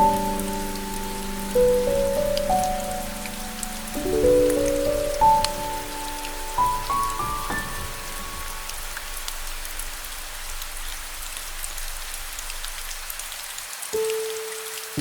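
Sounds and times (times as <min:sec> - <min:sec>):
piano notes ringing: 0:00.0 - 0:09.6
steady rain: 0:00.0 - 0:15.0.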